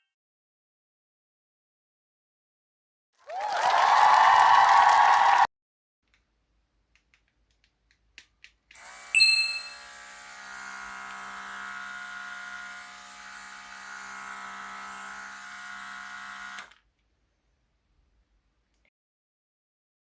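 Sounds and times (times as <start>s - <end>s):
compressor motor whining: 8.8s - 16.8s.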